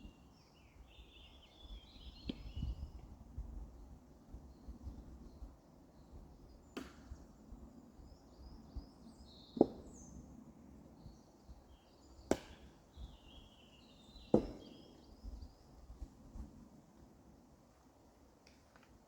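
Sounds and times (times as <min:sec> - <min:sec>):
axe chopping firewood: 0:06.8 - 0:07.0, 0:12.3 - 0:12.7, 0:14.3 - 0:14.7.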